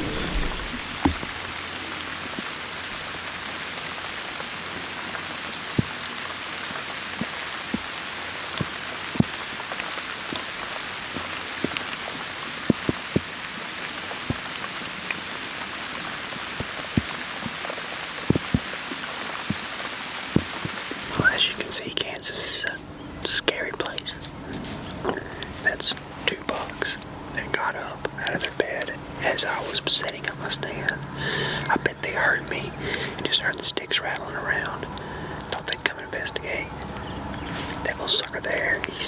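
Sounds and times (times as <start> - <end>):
steady rain: 0.0 - 23.4.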